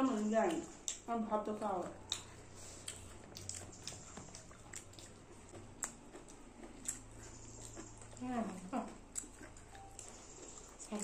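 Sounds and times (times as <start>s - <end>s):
raw vegetables crunching: 0.0s - 11.0s
soft chewing with wet clicks: 0.0s - 11.0s.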